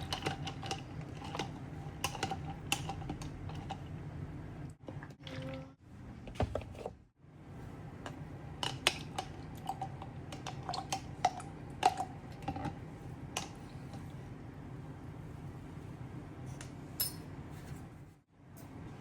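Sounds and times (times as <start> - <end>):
dishes and utensils clinking: 17.0 - 17.3.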